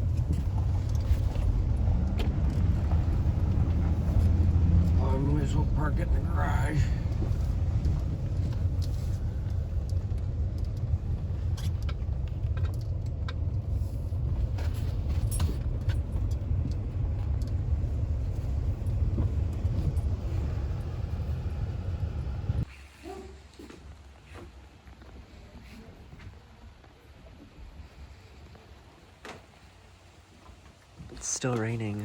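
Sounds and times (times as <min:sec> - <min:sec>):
light ticks and clicks: 0:00.0 - 0:21.3
car engine and road noise: 0:00.0 - 0:22.8, 0:28.2 - 0:32.0.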